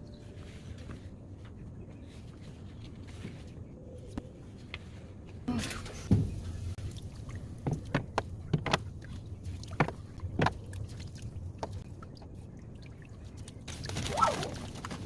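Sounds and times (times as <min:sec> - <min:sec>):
knocks against tub: 0:06.1 - 0:06.5.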